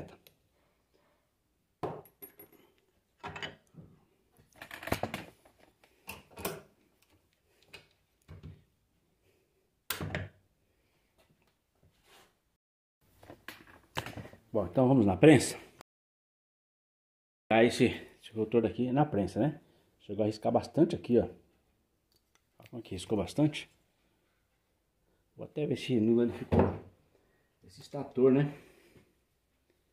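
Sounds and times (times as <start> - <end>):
metal parts clinking on workbench: 2.0 - 3.6.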